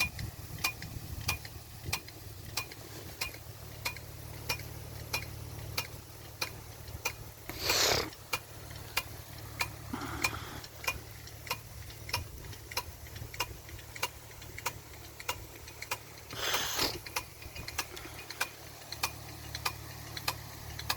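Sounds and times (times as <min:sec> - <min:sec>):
sprinkler arm ticking: 0:00.0 - 0:20.9
hissing rushes of spray: 0:07.4 - 0:08.2, 0:16.2 - 0:17.2.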